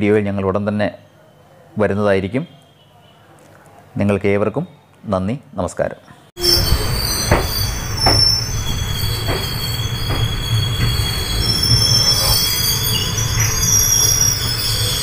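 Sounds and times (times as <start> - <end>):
high-pitched wheel squeal: 6.4 - 15.0
train low rumble: 6.4 - 15.0
wheel knocks: 6.7 - 12.1.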